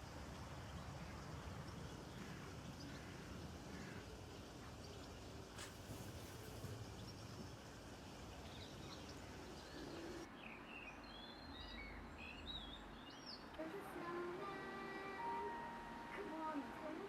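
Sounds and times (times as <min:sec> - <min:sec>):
small birds chirping: 0:00.0 - 0:13.6.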